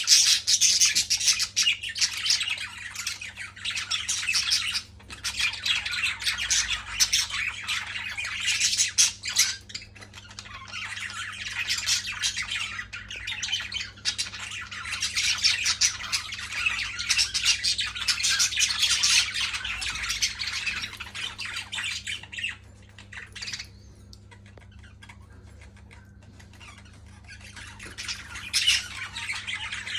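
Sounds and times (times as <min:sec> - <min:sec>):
birds squawking and chirping: 0:00.0 - 0:29.9.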